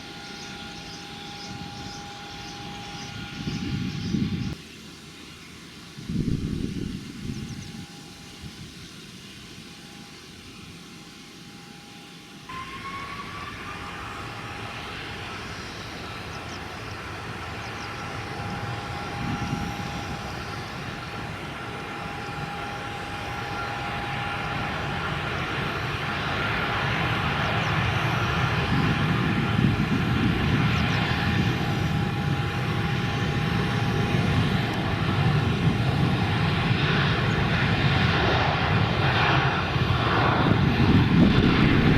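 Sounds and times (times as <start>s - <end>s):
jet engines spooling up: 0.0s - 41.9s
rising engine whine: 9.6s - 41.9s.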